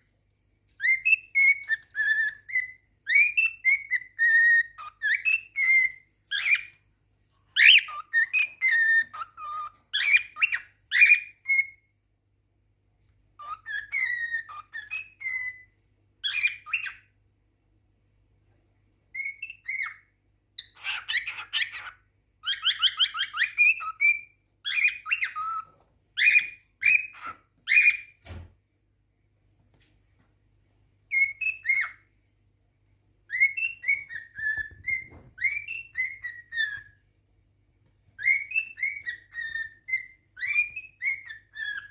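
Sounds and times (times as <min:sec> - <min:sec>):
cockatiel whistling and warbling: 0:00.8 - 0:06.8, 0:07.5 - 0:11.9, 0:13.4 - 0:17.2, 0:19.1 - 0:28.4, 0:31.1 - 0:32.1, 0:33.3 - 0:37.1, 0:38.1 - 0:41.9.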